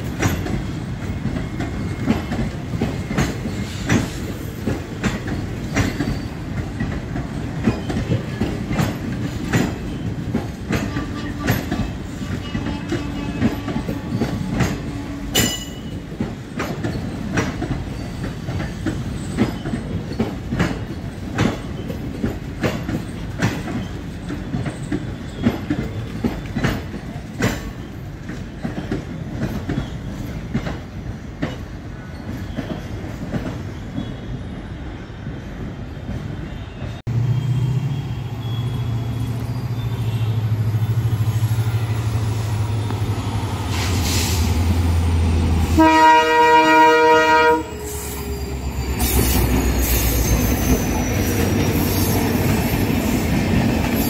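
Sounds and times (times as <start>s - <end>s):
train wheels clicking over rail joints: 0.0s - 34.2s
diesel locomotive engine drone: 36.6s - 54.0s.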